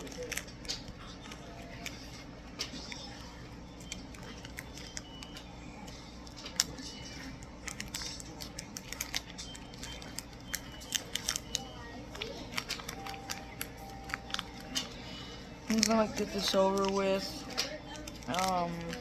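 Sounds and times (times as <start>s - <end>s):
plastic packaging crackling: 0.0s - 19.0s
wire cutters cutting plastic: 6.4s - 15.0s, 15.6s - 19.0s
steady low hum: 9.6s - 19.0s.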